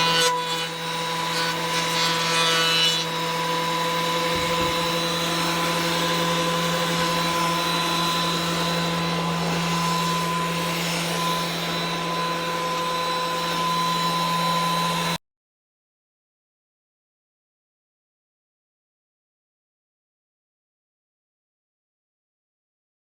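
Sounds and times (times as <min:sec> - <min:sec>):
electric motor running: 0:00.0 - 0:15.2.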